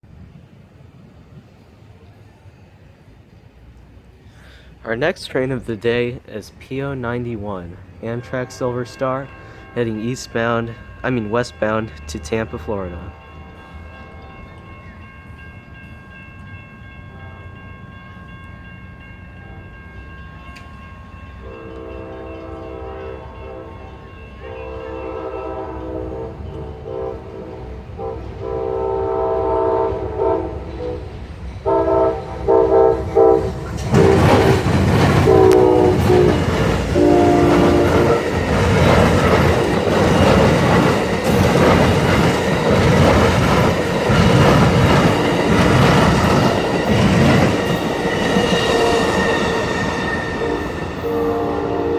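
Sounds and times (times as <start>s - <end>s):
train passing loudly: 0.0s - 51.9s
train air horn blasts: 8.1s - 9.9s, 21.4s - 39.8s, 48.3s - 51.9s
wheels clattering over rails: 33.4s - 51.0s.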